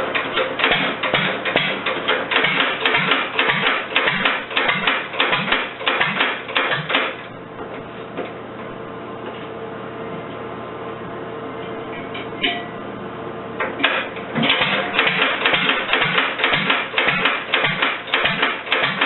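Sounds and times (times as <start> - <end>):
single-cylinder engine clattering: 0.0 - 7.2, 13.8 - 19.0
steady low hum: 0.0 - 19.0.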